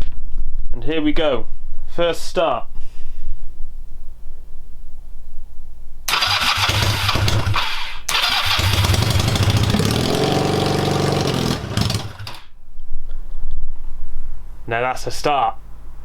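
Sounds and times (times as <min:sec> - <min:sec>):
motorcycle engine starting and revving: 0:06.1 - 0:12.5.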